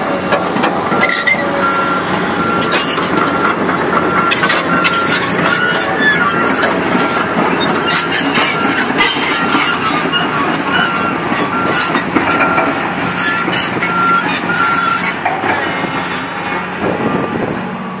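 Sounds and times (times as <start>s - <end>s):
excavator diesel engine running: 0.0s - 18.0s
track squeals: 0.0s - 18.0s
steel track links clanking: 2.5s - 16.6s.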